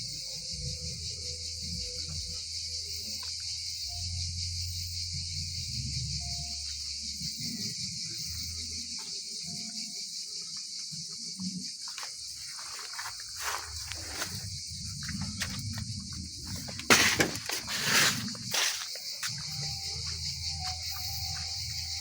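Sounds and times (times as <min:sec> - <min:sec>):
insects chirring: 0:00.0 - 0:22.0
low rumbling: 0:13.6 - 0:18.6.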